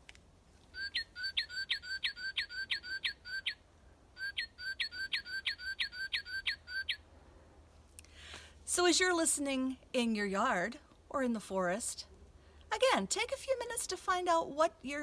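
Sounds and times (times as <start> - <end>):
bird singing whistles: 0.7 - 3.6, 4.2 - 7.0.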